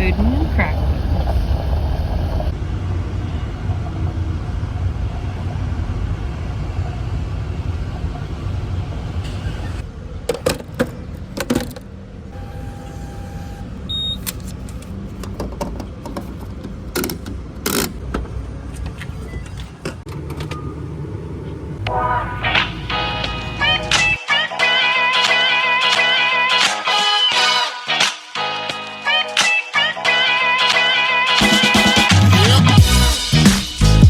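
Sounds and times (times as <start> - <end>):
vehicle rumbling: 0.0 - 24.2
short steady beep: 12.4 - 14.2
sharp clicks and knocks: 14.2 - 20.6.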